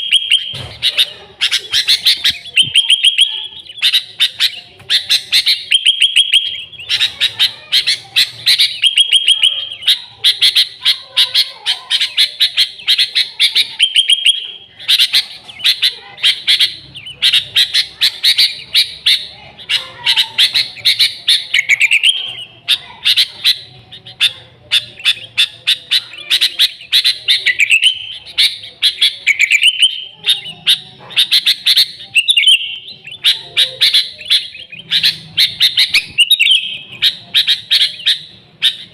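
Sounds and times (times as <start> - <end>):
bulbul chirping and trilling: 0.0 - 38.9.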